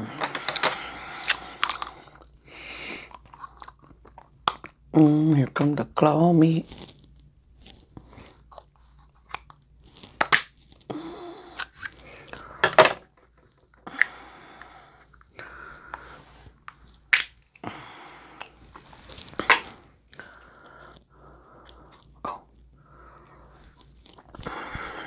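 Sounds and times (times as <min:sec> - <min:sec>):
crab shell cracking: 0:13.8 - 0:17.6.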